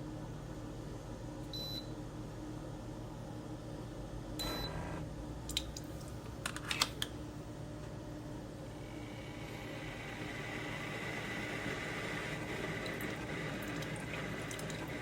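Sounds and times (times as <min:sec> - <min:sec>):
small appliance humming: 0:04.3 - 0:15.0.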